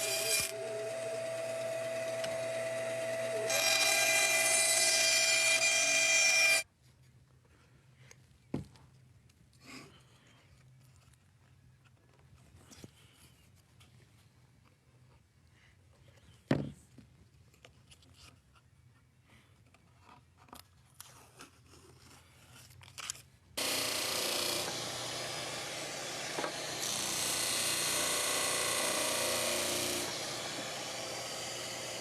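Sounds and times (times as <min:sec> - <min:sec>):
power tool running: 0:00.0 - 0:06.6, 0:23.6 - 0:32.0.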